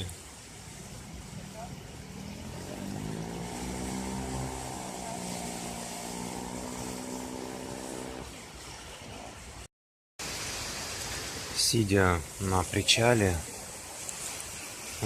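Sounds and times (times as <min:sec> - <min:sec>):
waves washing: 0:00.0 - 0:15.0
engine running: 0:00.9 - 0:08.4.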